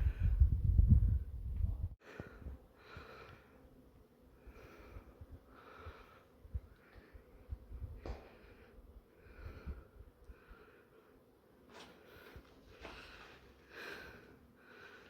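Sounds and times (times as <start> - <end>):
low rumble on microphone: 0.0 - 2.6
person breathing hard: 2.0 - 3.7, 4.4 - 7.3, 8.0 - 11.2, 12.0 - 15.0.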